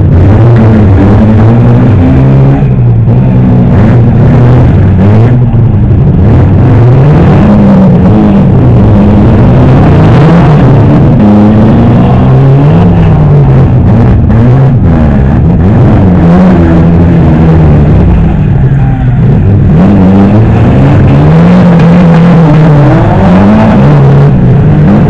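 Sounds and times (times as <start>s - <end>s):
car engines revving: 0.0s - 25.0s.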